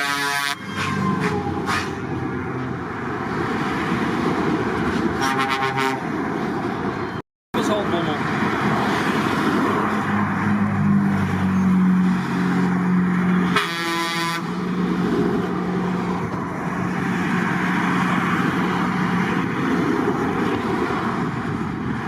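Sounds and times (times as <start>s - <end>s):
truck air horn blast: 0.0s - 2.2s, 5.2s - 6.1s, 13.4s - 14.6s
truck engines droning past: 0.0s - 22.0s.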